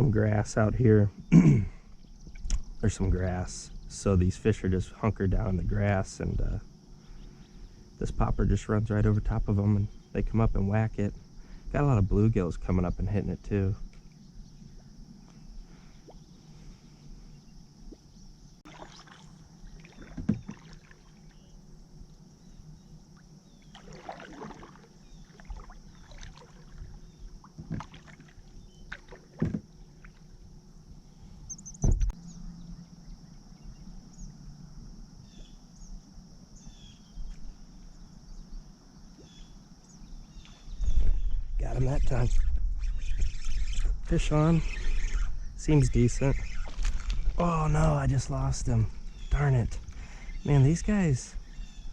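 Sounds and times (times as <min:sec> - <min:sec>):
high insect chirr: 0:00.0 - 0:51.9
water or line noise: 0:11.4 - 0:32.8, 0:39.1 - 0:51.9.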